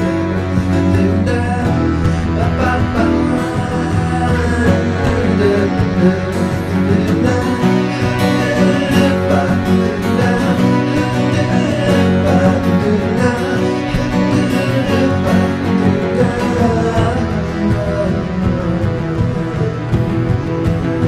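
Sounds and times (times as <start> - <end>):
guitar music with steady beat: 0.0 - 21.0.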